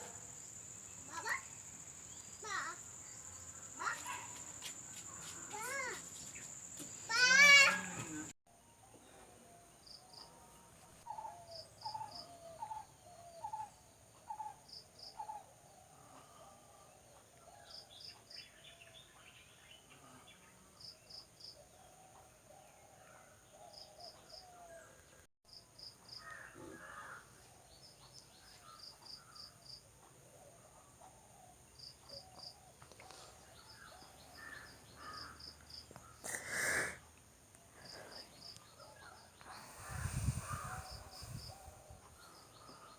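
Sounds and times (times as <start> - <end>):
high insect hum: 0.0 - 8.3, 31.8 - 42.9
birds calling: 32.1 - 36.9.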